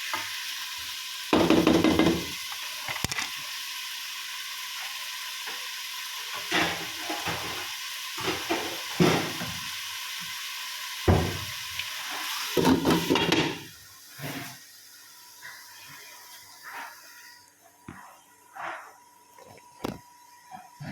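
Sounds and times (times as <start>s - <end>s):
curry sizzling in a pan: 0.0s - 17.6s
spatula scraping a pan: 12.1s - 14.6s.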